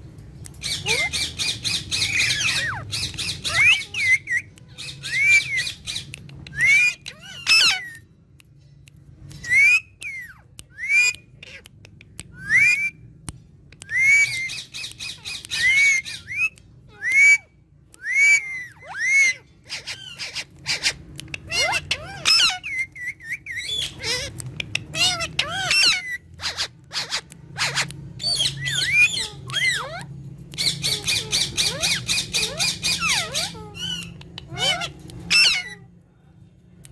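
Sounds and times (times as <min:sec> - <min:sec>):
parrots chattering: 0:00.5 - 0:08.0, 0:09.4 - 0:13.0, 0:13.9 - 0:35.9
parrots squawking: 0:00.6 - 0:08.0, 0:13.9 - 0:35.9.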